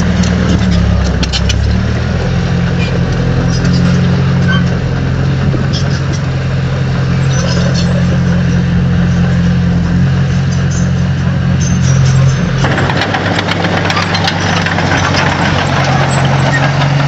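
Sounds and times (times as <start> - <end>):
diesel engine running under load: 0.0 - 17.0
metallic clanks and clicks: 0.2 - 1.8, 11.8 - 17.0.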